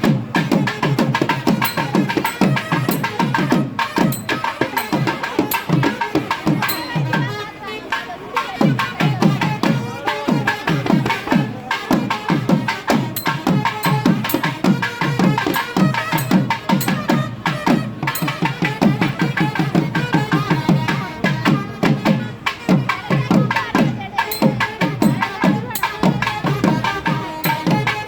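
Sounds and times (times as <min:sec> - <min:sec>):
drums in fast rhythm: 0:00.0 - 0:28.0
held tones: 0:01.6 - 0:07.4, 0:13.1 - 0:18.7.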